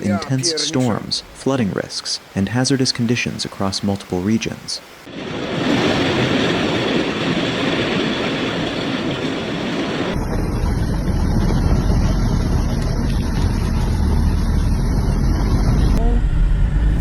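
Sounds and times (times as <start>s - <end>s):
wind and heavy rain: 0.0s - 16.0s
wind buffeting microphone: 5.1s - 17.0s.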